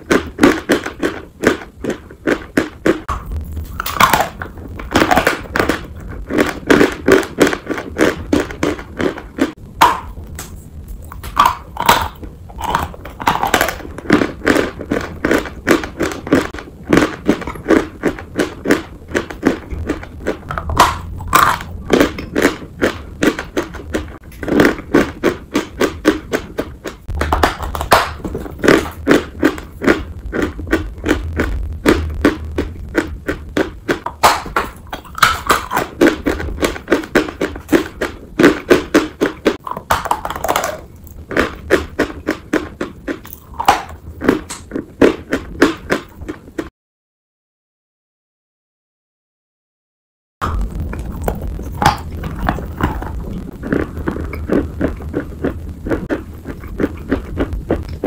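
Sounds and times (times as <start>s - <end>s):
chalk being chewed: 51.8s - 58.0s.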